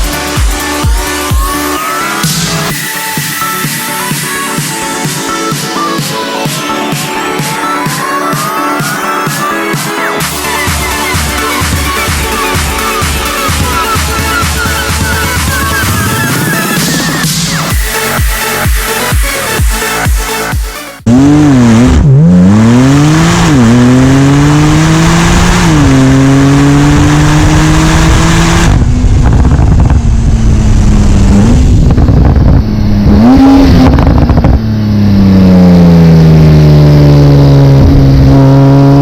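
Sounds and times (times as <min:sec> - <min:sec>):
car engine accelerating and shifting: 0:10.2 - 0:39.0.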